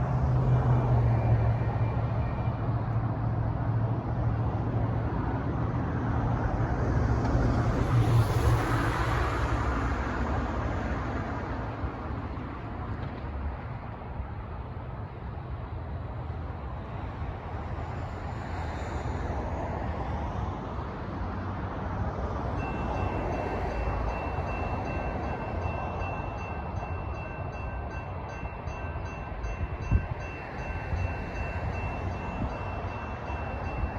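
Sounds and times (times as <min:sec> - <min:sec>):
light rail train passing: 0:00.0 - 0:33.9
railroad crossing bell ringing: 0:22.6 - 0:33.9.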